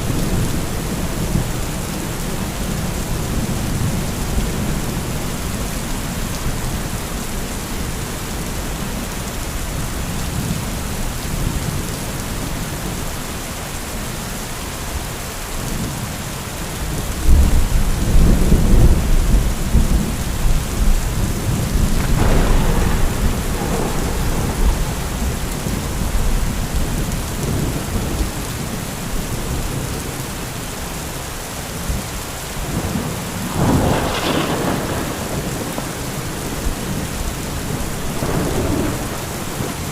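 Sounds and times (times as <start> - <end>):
heavy rain: 0.0 - 39.9
low rumble of thunder: 16.8 - 30.5, 31.8 - 39.9
sharp thunder crack: 21.0 - 28.1, 32.8 - 39.9.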